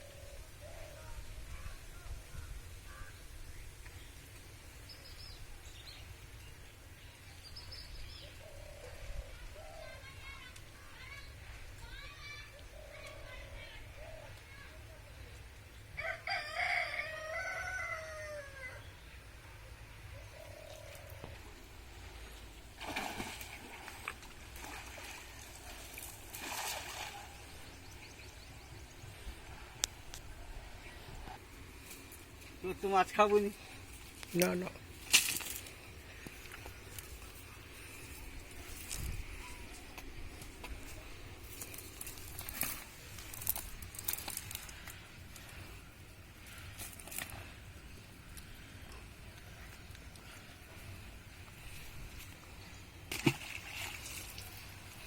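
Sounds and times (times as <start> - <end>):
water splashing: 22.7 - 27.6, 53.1 - 55.0.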